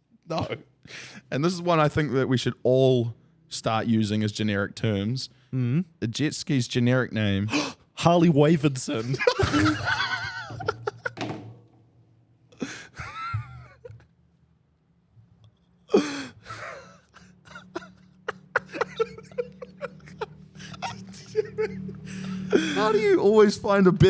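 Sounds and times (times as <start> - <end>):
gasping breaths: 0.9 - 1.3, 7.5 - 7.9, 12.6 - 13.0, 15.9 - 17.7, 20.6 - 20.9, 22.0 - 22.9
person laughing hard: 8.9 - 11.2, 12.6 - 14.0, 15.9 - 23.2.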